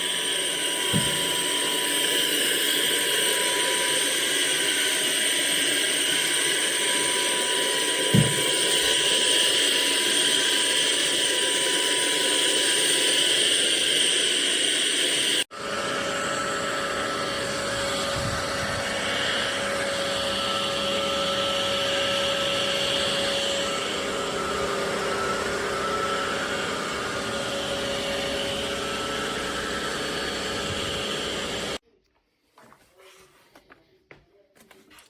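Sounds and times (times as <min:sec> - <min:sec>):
stick vacuum running: 0:00.0 - 0:31.8.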